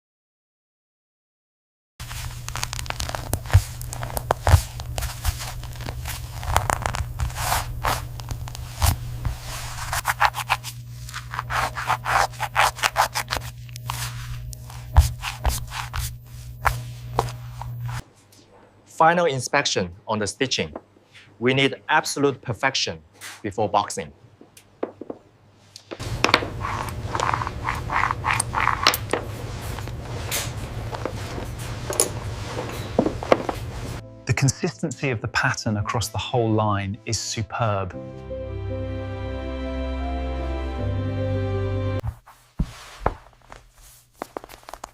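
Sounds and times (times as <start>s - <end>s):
low machine hum: 2.0s - 18.9s, 26.0s - 34.2s
scraping and snipping strokes: 2.1s - 18.5s, 25.7s - 34.0s.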